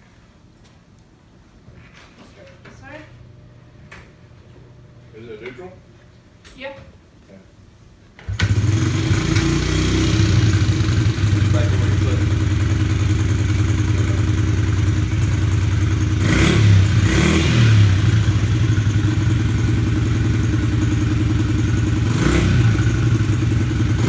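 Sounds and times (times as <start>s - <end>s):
motorcycle engine idling and revving: 8.3s - 24.0s.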